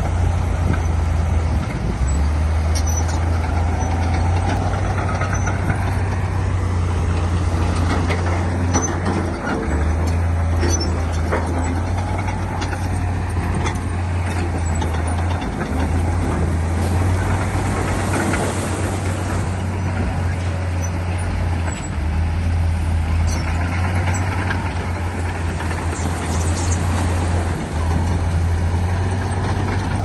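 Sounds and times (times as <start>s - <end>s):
diesel machinery droning: 0.0s - 30.0s
metal and rock clanks: 7.1s - 22.1s.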